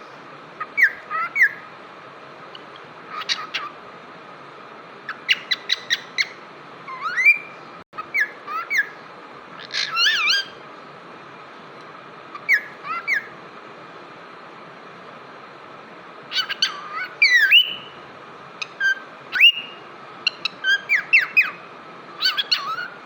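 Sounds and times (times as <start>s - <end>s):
cockatiel chirping and whistling: 0.7s - 1.7s, 3.1s - 3.7s, 5.2s - 9.0s, 9.6s - 10.6s, 12.3s - 13.3s, 16.3s - 18.0s, 18.6s - 21.6s, 22.2s - 23.0s.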